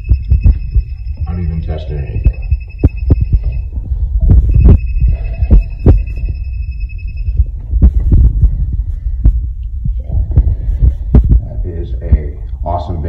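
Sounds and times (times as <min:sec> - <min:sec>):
high-pitched electronic tone: 0:00.0 - 0:08.3
heavy low rumble: 0:00.0 - 0:13.0.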